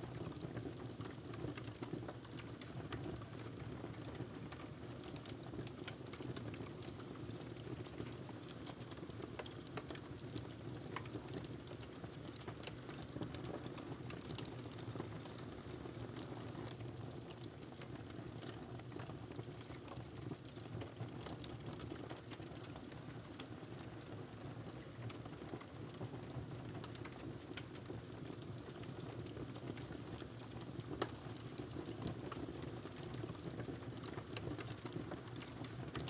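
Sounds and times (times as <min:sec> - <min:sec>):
wood fire crackling: 0:26.6 - 0:36.0.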